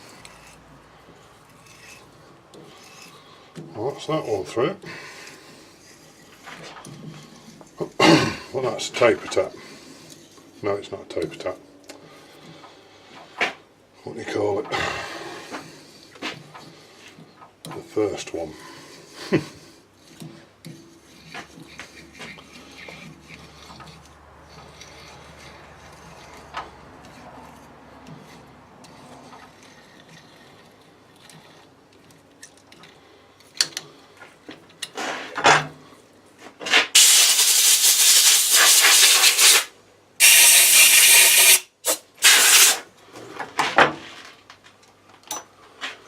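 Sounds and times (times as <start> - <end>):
pressurised jet hissing blasts: 37.0 - 42.8.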